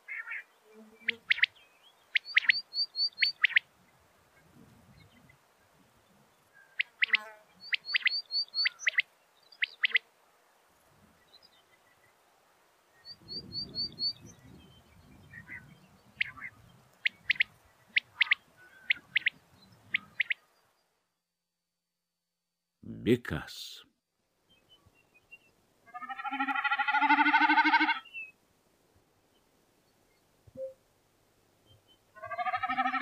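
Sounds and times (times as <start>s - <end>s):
quail calling: 0.0s - 0.5s, 1.1s - 3.6s, 6.6s - 10.0s, 15.4s - 20.4s, 25.9s - 28.1s, 32.2s - 33.0s
high bird chirps: 1.0s - 3.6s, 6.6s - 10.0s, 13.0s - 20.5s.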